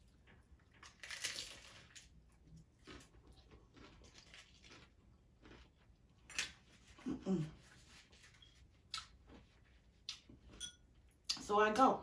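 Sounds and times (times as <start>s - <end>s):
crunching taco shell: 0.1s - 6.8s.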